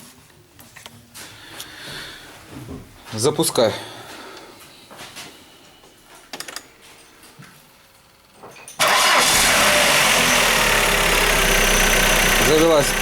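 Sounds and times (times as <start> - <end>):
car engine cranking and starting: 8.8 - 13.0
car engine running: 8.8 - 13.0.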